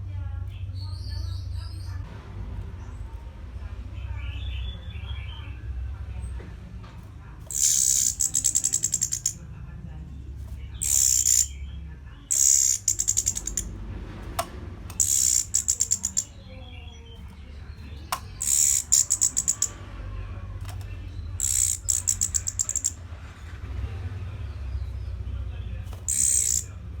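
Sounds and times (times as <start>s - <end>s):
thrush singing: 7.5s - 9.4s, 10.8s - 23.0s, 25.9s - 26.8s.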